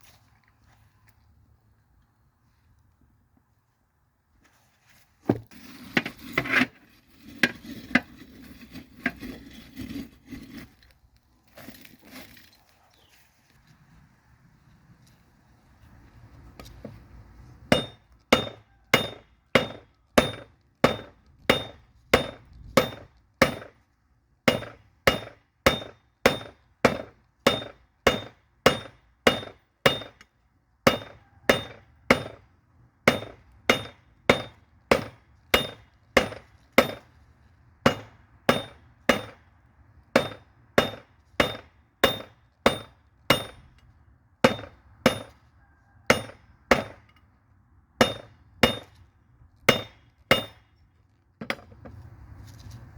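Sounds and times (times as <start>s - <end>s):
hammer ringing on anvil: 46.1s - 47.0s.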